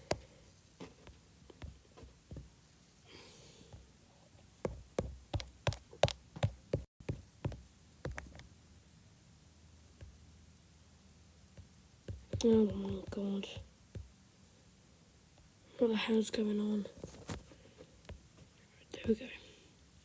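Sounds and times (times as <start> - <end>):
faint breath: 3.0 - 3.8.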